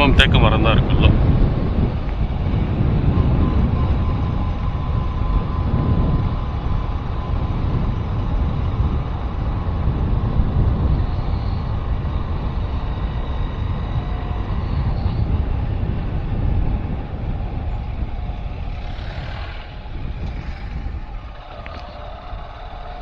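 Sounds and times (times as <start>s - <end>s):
vehicle engine and road noise: 0.0s - 23.0s
wind on microphone: 0.0s - 23.0s.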